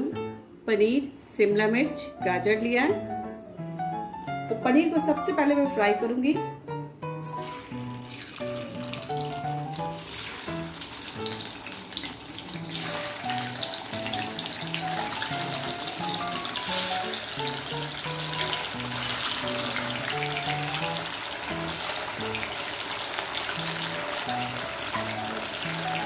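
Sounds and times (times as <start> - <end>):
light background music: 0.0 - 26.0
cheese cubes sizzling in hot oil: 7.3 - 26.0.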